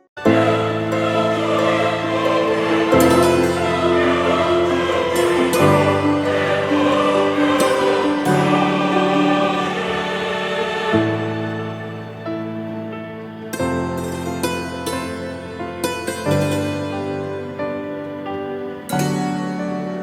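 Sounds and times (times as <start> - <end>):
choir singing slow chords: 0.0 - 19.7.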